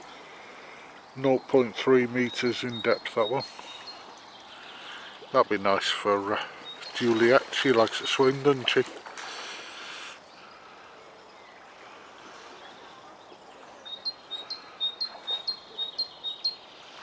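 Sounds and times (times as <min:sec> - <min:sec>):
bird chirping: 0:01.0 - 0:08.8, 0:12.7 - 0:16.8.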